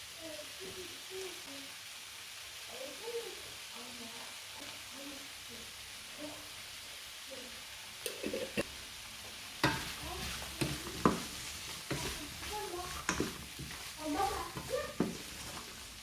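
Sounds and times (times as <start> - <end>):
food sizzling in frying pan: 0.0 - 16.0
utensil knocking against pan: 9.6 - 15.6.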